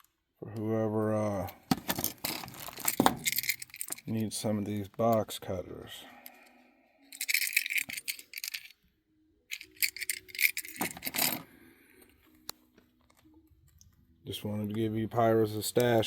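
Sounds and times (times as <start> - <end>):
small metal objects jangling: 1.9 - 4.2, 7.1 - 8.8, 9.5 - 11.5.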